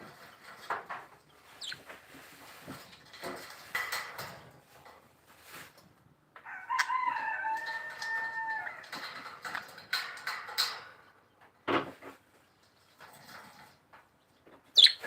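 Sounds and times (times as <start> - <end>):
rooster crowing: 6.4 - 8.8.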